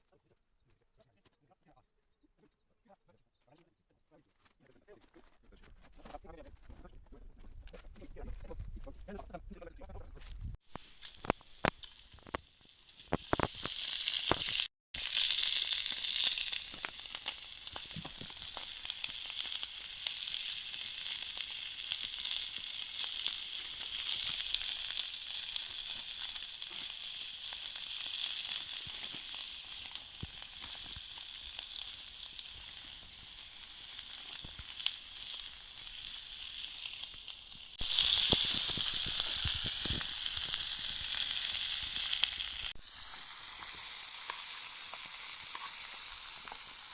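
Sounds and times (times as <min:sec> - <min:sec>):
food sizzling in a pan: 0:10.6 - 0:46.9.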